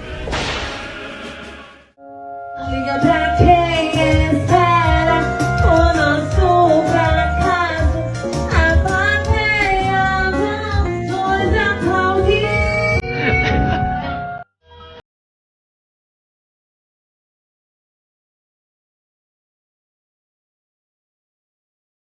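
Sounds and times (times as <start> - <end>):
song with singing over a beat: 2.6 - 13.0.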